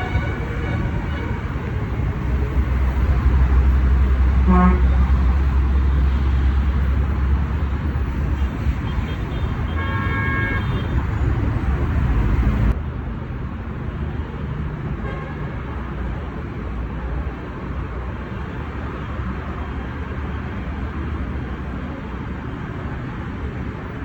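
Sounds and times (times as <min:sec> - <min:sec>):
vehicle horn: 0:00.0 - 0:01.7, 0:04.4 - 0:06.8, 0:08.3 - 0:11.2
road traffic: 0:00.0 - 0:24.0.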